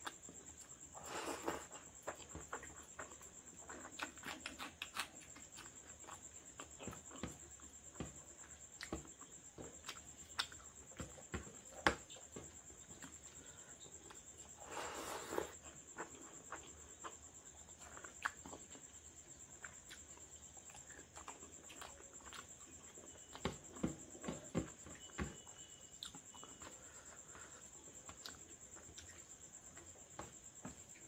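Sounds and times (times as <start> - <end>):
wet chewing and lip-smacking: 15.6 - 23.4.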